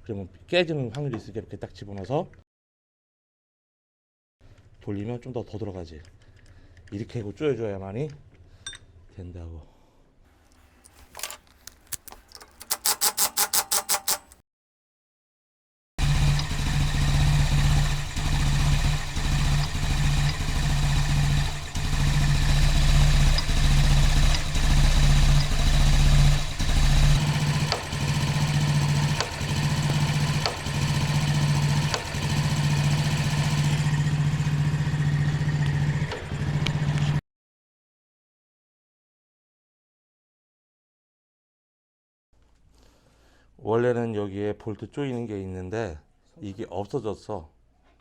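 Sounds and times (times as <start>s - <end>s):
rapid clatter: 16.0s - 34.0s
engine idling unevenly: 16.0s - 37.2s.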